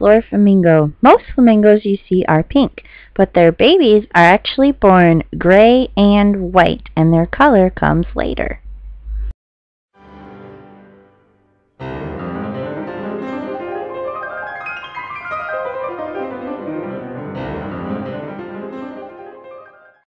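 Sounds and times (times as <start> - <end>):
piano music: 10.0 - 20.0.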